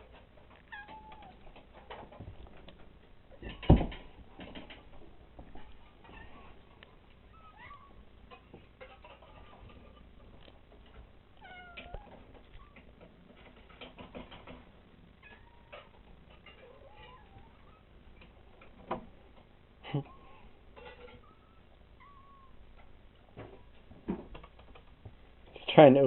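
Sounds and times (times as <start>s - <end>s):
cats meowing: 0.5s - 2.0s, 5.6s - 10.4s, 11.3s - 13.1s, 15.2s - 18.3s, 19.9s - 22.9s.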